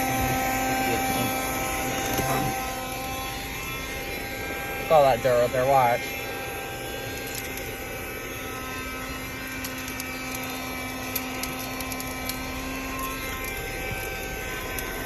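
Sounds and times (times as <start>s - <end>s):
grit ticking in vacuum: 0.0s - 15.0s
handheld vacuum running: 0.0s - 15.0s.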